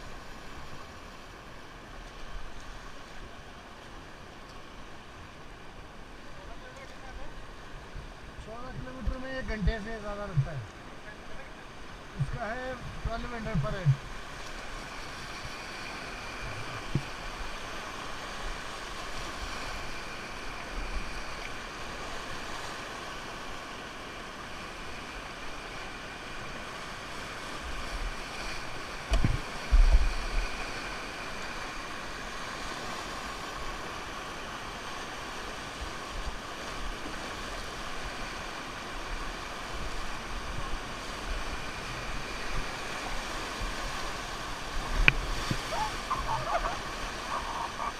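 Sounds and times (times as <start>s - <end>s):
river water rushing: 0.0s - 47.9s
wind buffeting microphone: 40.4s - 47.9s.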